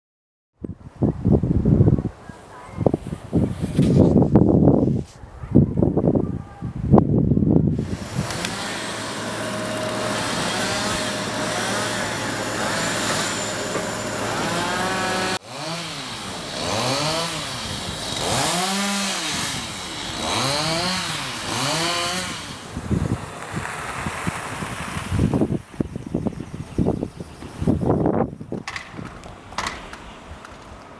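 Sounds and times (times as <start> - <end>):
small engine revving: 7.7 - 26.0.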